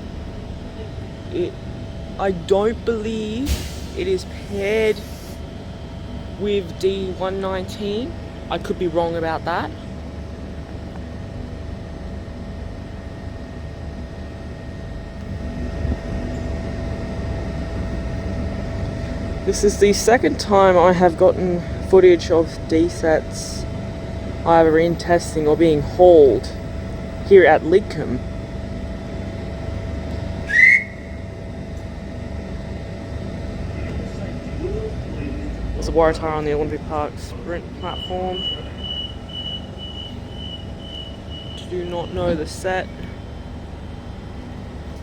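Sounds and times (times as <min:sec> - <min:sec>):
train rumble and hum: 0:00.0 - 0:45.0
short rising whistle: 0:30.4 - 0:31.3, 0:37.8 - 0:41.7.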